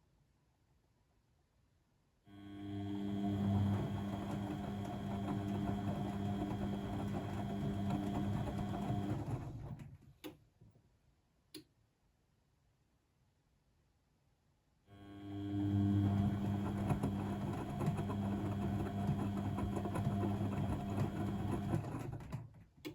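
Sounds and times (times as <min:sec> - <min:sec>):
washing machine drum motor hum: 0:02.8 - 0:10.0, 0:15.6 - 0:22.5.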